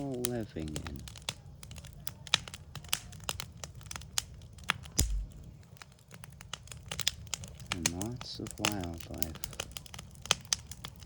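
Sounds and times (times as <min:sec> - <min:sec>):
wood fire crackling and popping: 0:00.0 - 0:11.0
dull thump: 0:05.0 - 0:05.4.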